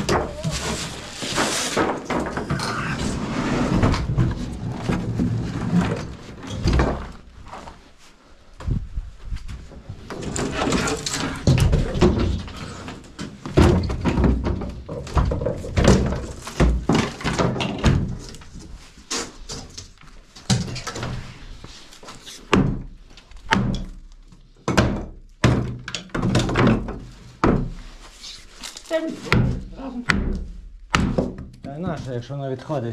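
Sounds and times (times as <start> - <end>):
heavy wooden thuds and bangs: 0.0 - 7.2, 9.6 - 18.3, 24.7 - 27.8, 29.3 - 31.5
wood scraping: 0.0 - 8.0, 9.6 - 22.6.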